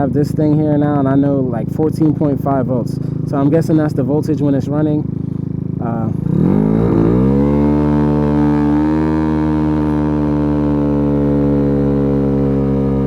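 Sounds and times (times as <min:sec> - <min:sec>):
small motorbike engine accelerating: 0:05.1 - 0:13.0.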